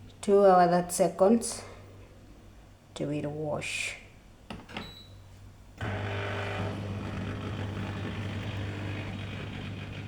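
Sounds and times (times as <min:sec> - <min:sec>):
dishwasher motor humming: 0:05.8 - 0:10.0.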